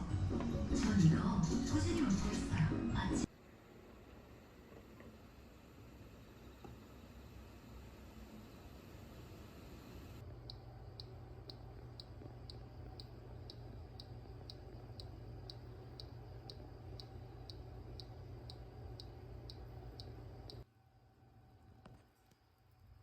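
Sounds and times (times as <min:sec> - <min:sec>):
small machine humming: 0:03.2 - 0:20.7
light high ticking: 0:10.2 - 0:20.6.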